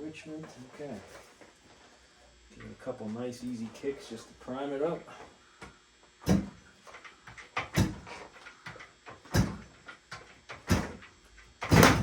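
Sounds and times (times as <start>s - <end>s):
motorcycle kickstart thumps: 6.3s - 6.6s, 7.6s - 8.2s, 9.2s - 9.7s, 10.5s - 12.0s.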